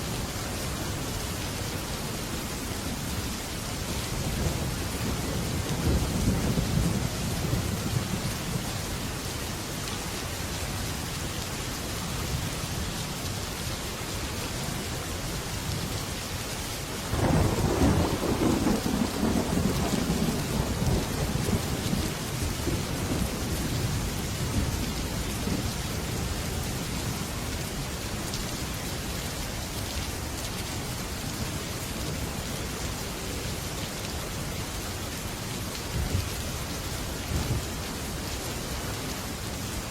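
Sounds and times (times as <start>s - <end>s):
heavy rain on metal roof: 0.0s - 39.9s
loud thunderclap: 17.1s - 21.9s
low thunder rumble: 17.1s - 26.4s.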